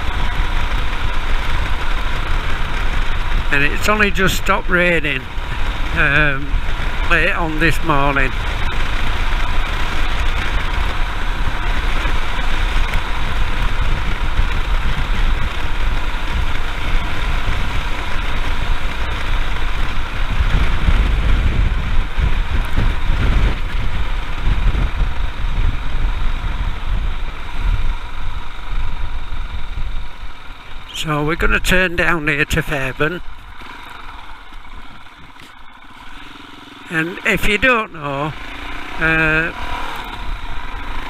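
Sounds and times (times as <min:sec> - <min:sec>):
wind rushing on microphone: 0:00.0 - 0:33.4
motorcycle engine running: 0:00.0 - 0:41.0.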